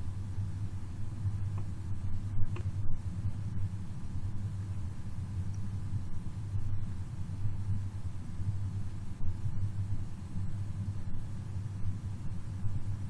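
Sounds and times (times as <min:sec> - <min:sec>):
low rumbling hum: 0:00.0 - 0:13.0.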